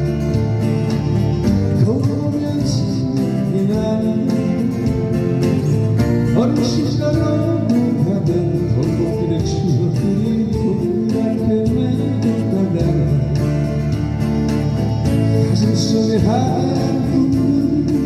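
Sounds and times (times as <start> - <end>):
band playing slow pop song: 0.0 - 18.0
guitar: 0.0 - 18.0
person singing: 1.3 - 5.1, 6.3 - 13.8, 15.1 - 18.0.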